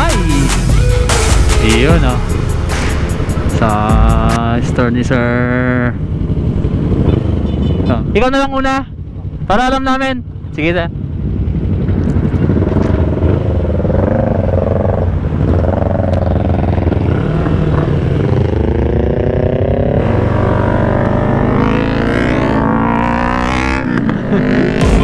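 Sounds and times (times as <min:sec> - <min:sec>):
motorcycle engine revving loudly: 0:05.1 - 0:08.2, 0:11.1 - 0:25.0.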